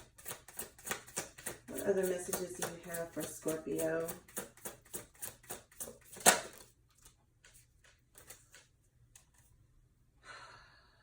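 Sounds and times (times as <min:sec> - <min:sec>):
cards being shuffled: 0:04.3 - 0:09.5.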